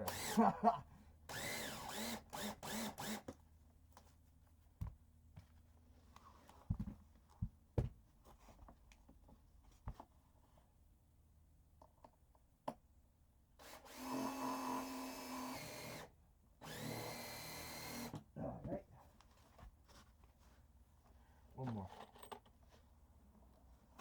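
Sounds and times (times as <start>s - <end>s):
power drill motor running: 0.0s - 0.4s, 1.3s - 3.2s, 13.6s - 18.2s.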